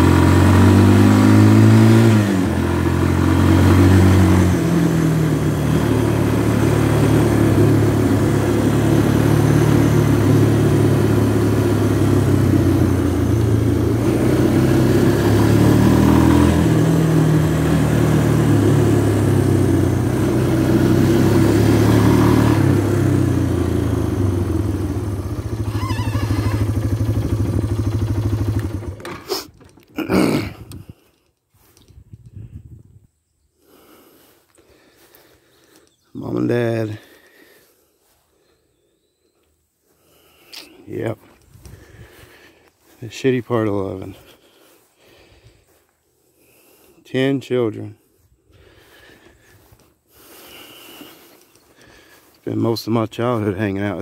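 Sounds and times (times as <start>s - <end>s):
atv engine running: 0.0s - 31.2s, 40.0s - 44.7s, 48.6s - 54.0s.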